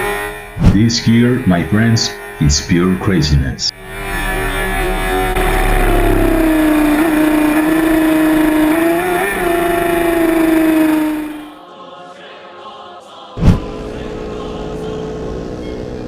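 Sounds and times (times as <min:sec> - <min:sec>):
loud burst of noise: 0:03.8 - 0:11.6
motorcycle engine at high revs: 0:04.0 - 0:11.6.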